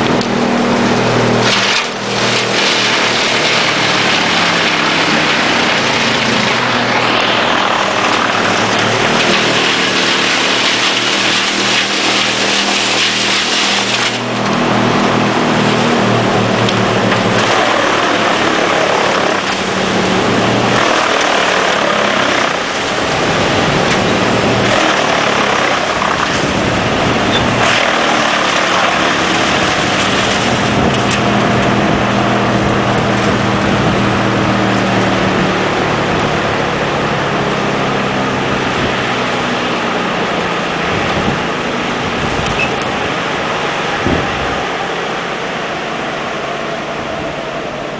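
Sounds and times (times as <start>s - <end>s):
wood chipper engine hum: 0.0s - 47.9s
grinding hiss of wood chipping: 0.3s - 14.7s, 15.4s - 26.6s.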